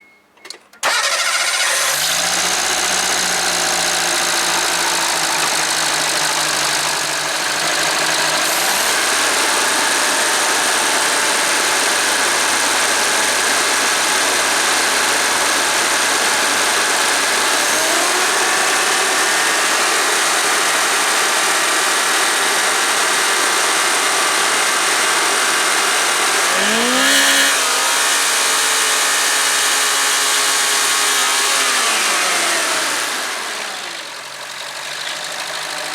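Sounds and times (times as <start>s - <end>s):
car engine running: 1.6s - 23.2s, 26.0s - 29.1s.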